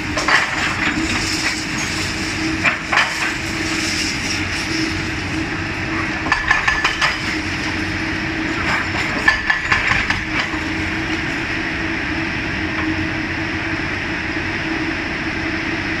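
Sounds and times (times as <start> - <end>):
excavator engine humming: 0.0 - 16.0
masonry breaking and debris falling: 0.2 - 3.8, 6.3 - 7.9, 8.5 - 11.3.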